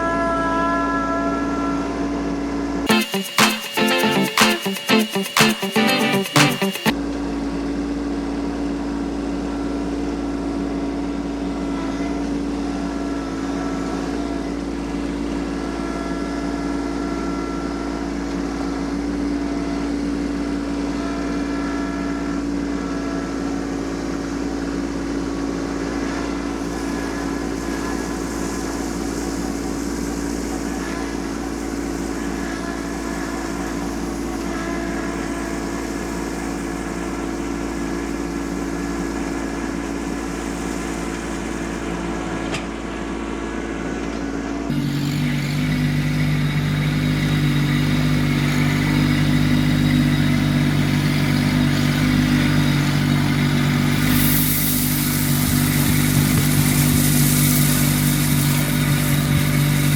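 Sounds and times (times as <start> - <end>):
tractor diesel engine running: 44.7 - 59.9.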